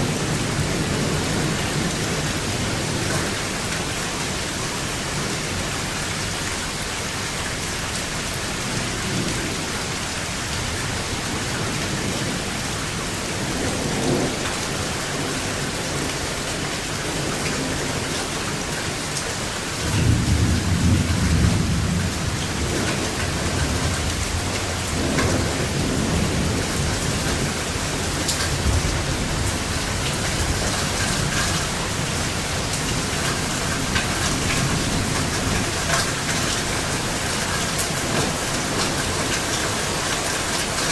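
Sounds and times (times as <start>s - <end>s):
heavy rain: 0.0s - 40.9s
rolling thunder: 19.8s - 35.7s.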